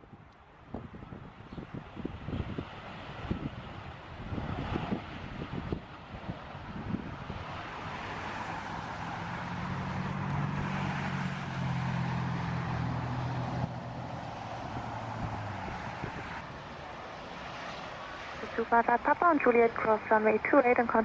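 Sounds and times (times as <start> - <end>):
low engine hum: 0.0 - 21.0
jet engines roaring: 3.1 - 21.0.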